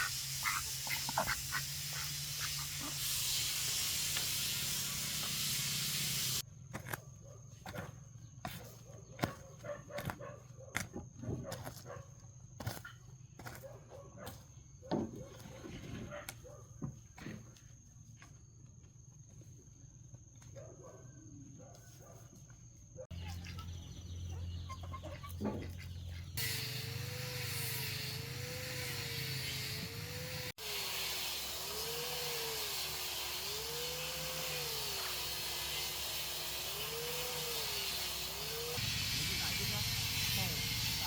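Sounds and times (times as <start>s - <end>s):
chickens clucking: 0.0s - 3.0s, 23.4s - 26.4s
steady hiss: 0.0s - 6.4s.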